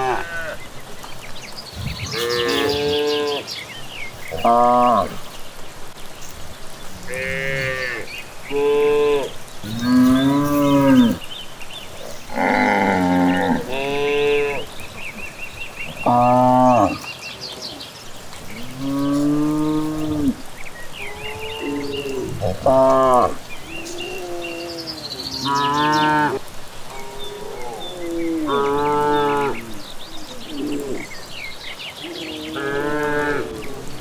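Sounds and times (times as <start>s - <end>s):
cattle mooing: 1.9s - 3.4s, 12.3s - 14.7s, 18.6s - 20.4s, 32.2s - 34.0s.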